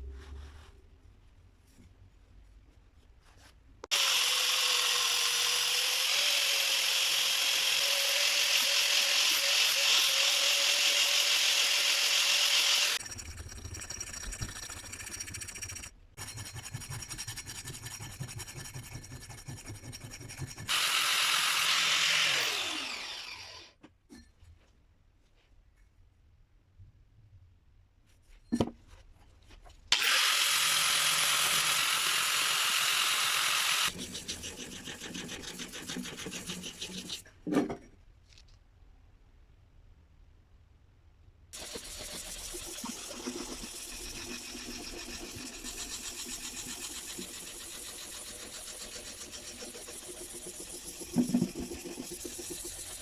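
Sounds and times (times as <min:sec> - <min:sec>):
electric power tool running: 0:03.9 - 0:13.0, 0:20.7 - 0:23.7, 0:30.0 - 0:34.0
motor winding down whine: 0:20.7 - 0:23.7.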